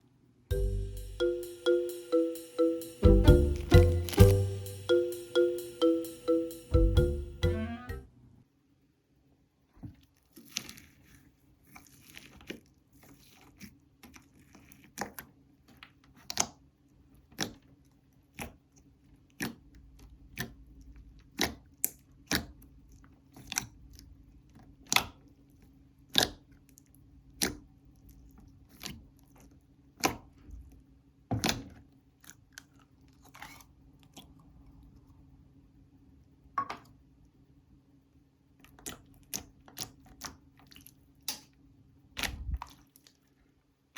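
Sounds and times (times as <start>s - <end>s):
slime squishing: 9.9s - 16.6s, 17.2s - 30.7s, 38.6s - 41.4s, 42.2s - 43.4s.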